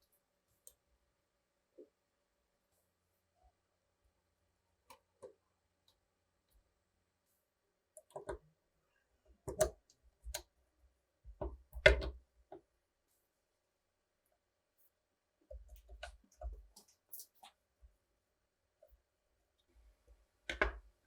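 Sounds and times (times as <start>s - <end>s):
clicks and knocks of small parts: 9.5s - 10.5s.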